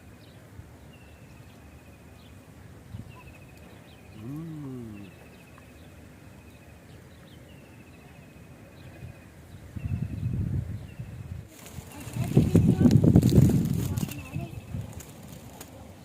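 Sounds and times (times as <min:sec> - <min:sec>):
low animal call: 0:04.1 - 0:05.7.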